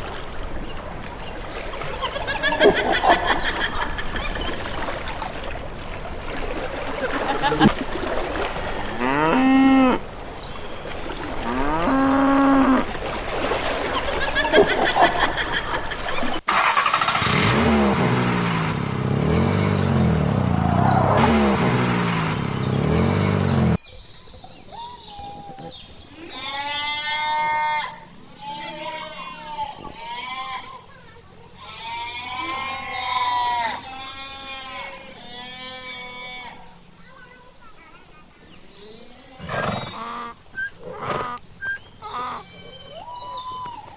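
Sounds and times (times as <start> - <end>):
cow mooing: 8.8 - 10.0, 11.4 - 12.9
livestock bleating: 26.2 - 30.8, 31.6 - 36.7.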